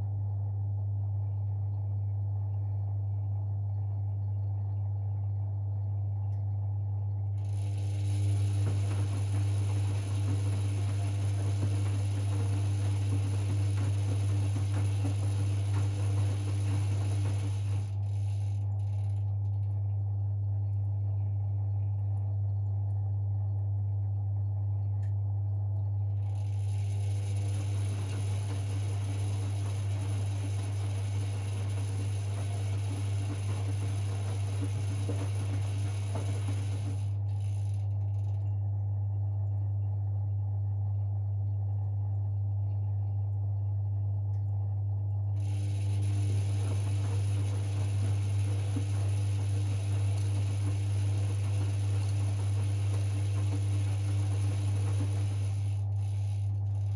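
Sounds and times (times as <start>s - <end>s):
low hum: 0.0s - 56.9s
washing machine motor rattling: 7.2s - 20.1s, 26.0s - 38.6s, 45.3s - 56.9s.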